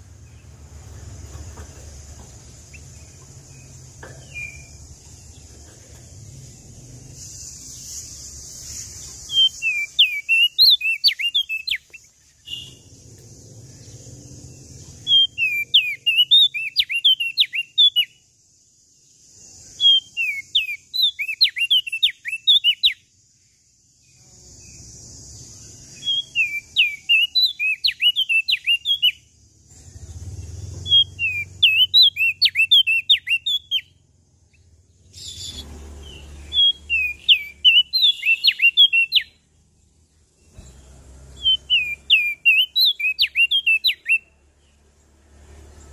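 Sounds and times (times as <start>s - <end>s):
steady hiss: 0.0s - 10.0s
songbird whistling phrases: 9.2s - 12.9s, 15.0s - 18.2s, 19.7s - 23.1s, 25.9s - 29.3s, 30.8s - 34.0s, 35.1s - 39.4s, 41.4s - 44.3s.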